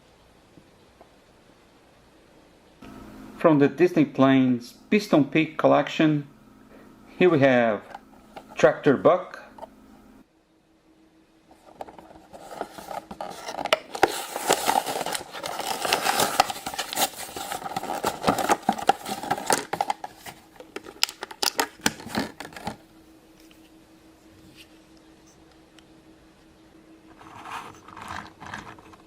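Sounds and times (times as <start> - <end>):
plastic packaging crinkling: 11.6 - 22.8.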